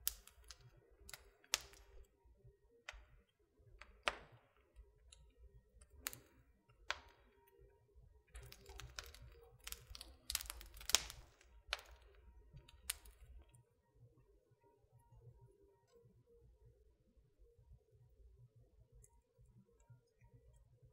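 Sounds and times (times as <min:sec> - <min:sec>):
wood fire crackling: 0:00.0 - 0:13.6.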